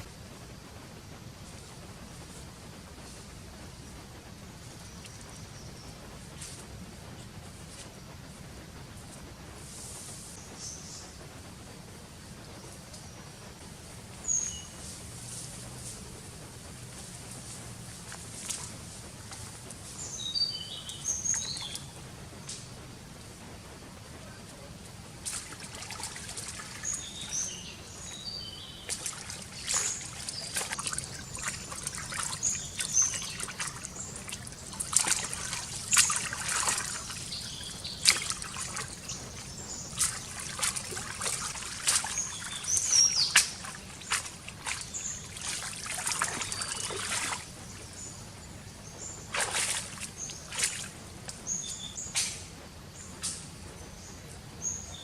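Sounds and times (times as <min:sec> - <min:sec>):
small birds chirping: 0:14.1 - 0:22.7, 0:24.2 - 0:55.0
water trickling and splashing: 0:14.2 - 0:22.0, 0:25.1 - 0:52.4.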